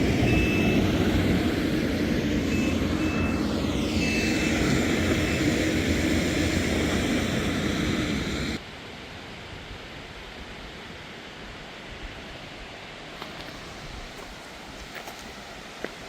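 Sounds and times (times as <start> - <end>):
heavy machinery engine: 0.0 - 8.6
reversing alarm beeping: 0.0 - 8.6
faint outdoor hiss: 8.6 - 16.0.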